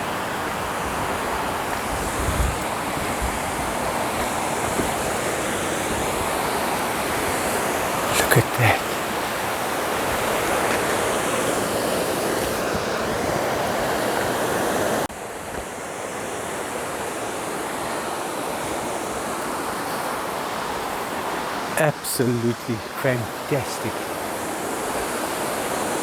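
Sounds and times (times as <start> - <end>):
rushing river and waterfall: 0.0 - 26.0.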